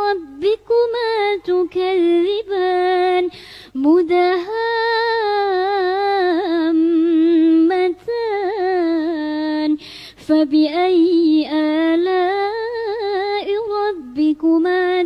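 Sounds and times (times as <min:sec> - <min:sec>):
quick breath: 0:03.3 - 0:03.8, 0:09.8 - 0:10.2.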